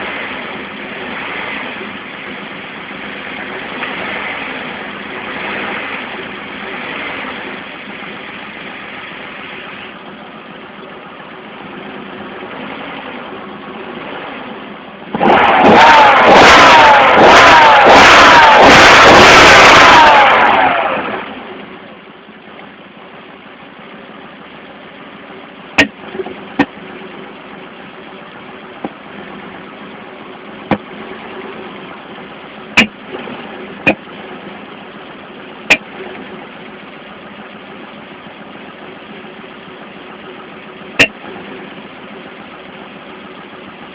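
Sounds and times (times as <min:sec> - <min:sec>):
car engine idling: 0:00.0 - 0:43.9
engine misfire pops: 0:25.8 - 0:26.9, 0:28.8 - 0:29.1, 0:30.6 - 0:31.0, 0:32.7 - 0:34.2, 0:35.6 - 0:36.2, 0:41.0 - 0:41.3.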